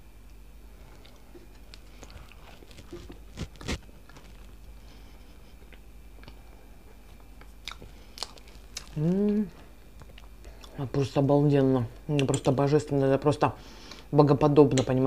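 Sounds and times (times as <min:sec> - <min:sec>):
person chewing soft food: 0:00.7 - 0:10.8.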